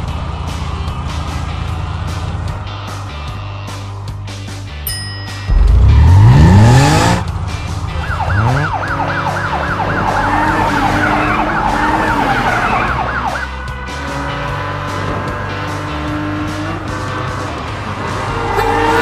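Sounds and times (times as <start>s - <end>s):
background music: 0.0s - 19.0s
engine revving: 5.5s - 19.0s
fast warbling siren: 8.0s - 13.5s.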